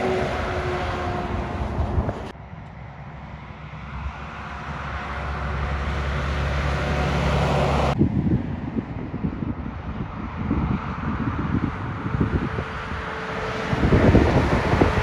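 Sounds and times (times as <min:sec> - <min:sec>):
truck engine drone: 0:00.0 - 0:08.0, 0:11.2 - 0:15.0
passing traffic: 0:00.0 - 0:15.0.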